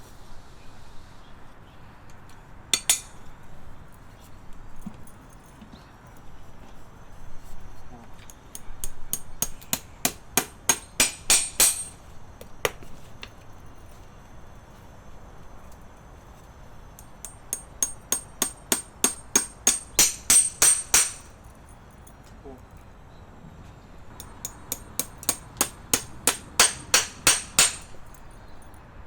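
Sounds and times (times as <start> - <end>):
hammer striking metal: 2.8 - 3.2, 8.5 - 12.0, 17.0 - 21.3, 24.2 - 28.0.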